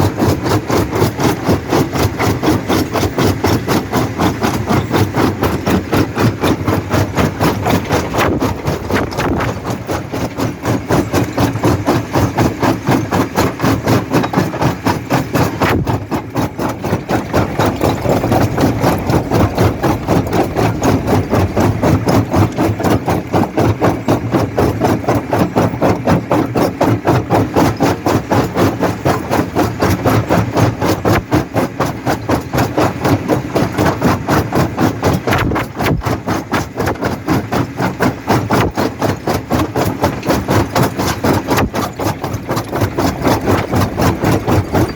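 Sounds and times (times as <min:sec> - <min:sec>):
machine hum: 0:00.0 - 0:34.1.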